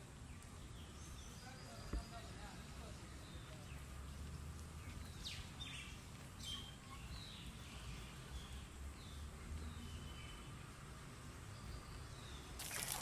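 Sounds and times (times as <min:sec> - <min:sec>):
birds chirping: 0:00.1 - 0:10.8.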